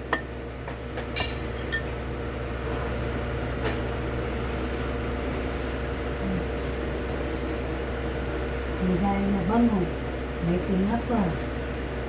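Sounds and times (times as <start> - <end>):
machine hum: 0.0 - 12.0
utensils clinking against dishes: 1.1 - 2.0.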